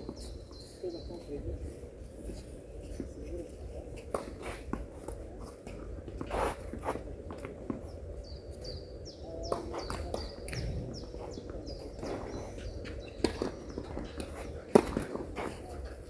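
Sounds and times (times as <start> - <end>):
small birds chirping: 0.0 - 3.6, 7.4 - 16.0.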